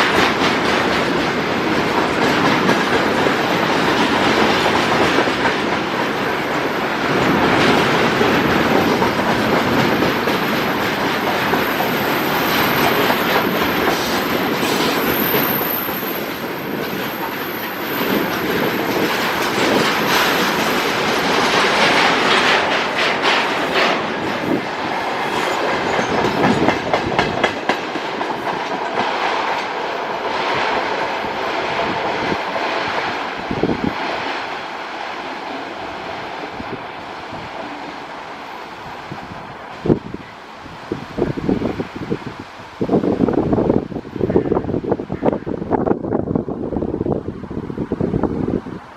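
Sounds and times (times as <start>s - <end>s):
wheels clicking over rail joints: 0.0s - 31.1s.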